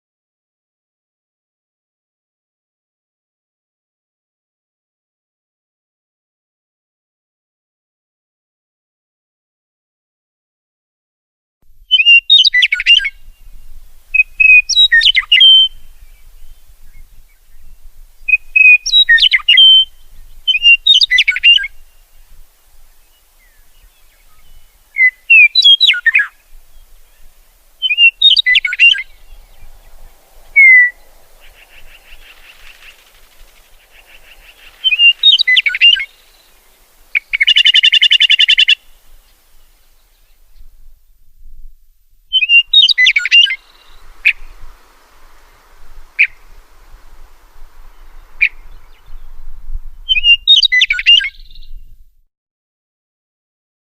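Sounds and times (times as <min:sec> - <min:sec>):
songbird whistling phrases: 0:11.9 - 0:22.2, 0:23.1 - 0:39.0, 0:42.3 - 0:51.9
harsh buzzy bird call: 0:22.9 - 0:39.7, 0:42.3 - 0:51.4.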